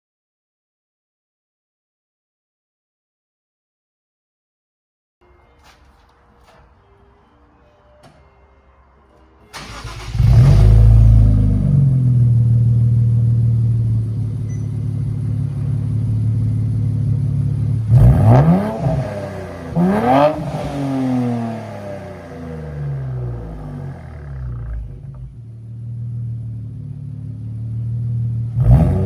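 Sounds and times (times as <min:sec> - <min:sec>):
car engine starting and idling: 0:09.2 - 0:29.0
engine throttle blips: 0:09.5 - 0:29.0.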